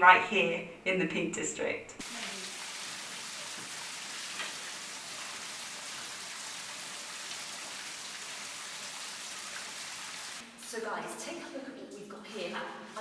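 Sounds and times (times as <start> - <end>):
water trickling down rock: 2.0 - 10.4.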